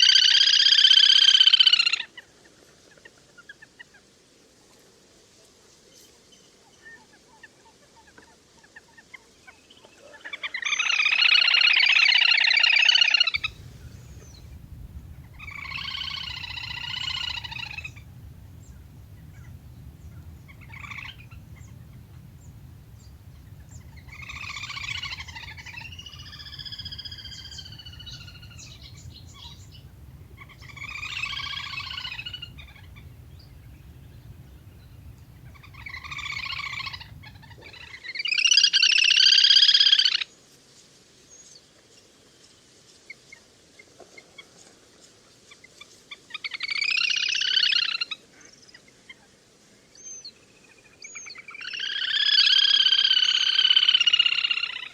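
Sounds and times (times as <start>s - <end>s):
duck whistled calls: 13.4s - 37.8s
low steady hum: 13.4s - 37.8s.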